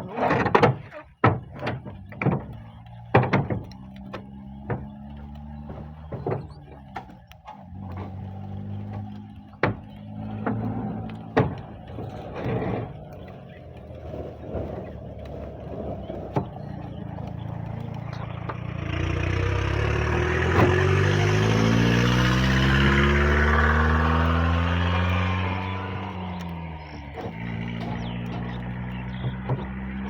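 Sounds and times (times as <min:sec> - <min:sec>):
sharp knocks: 0:00.0 - 0:13.2, 0:15.9 - 0:30.0
vehicle engine running loudly: 0:01.9 - 0:30.0.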